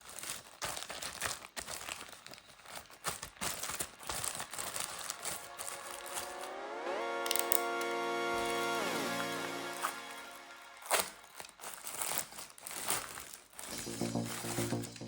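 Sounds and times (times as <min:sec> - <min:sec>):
packaging crinkling and tearing: 0:00.0 - 0:06.6, 0:09.7 - 0:15.0
music with rising tone: 0:05.0 - 0:11.3, 0:13.7 - 0:15.0.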